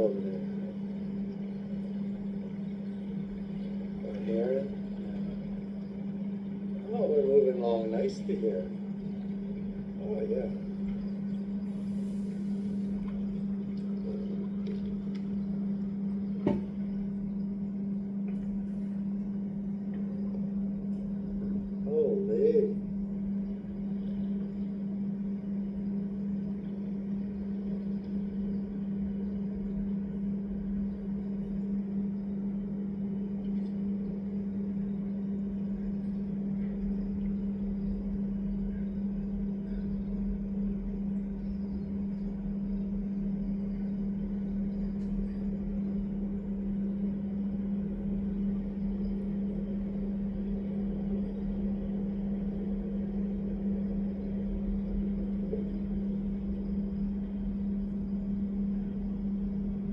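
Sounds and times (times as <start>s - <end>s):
low-pitched hum: 0.0s - 59.9s.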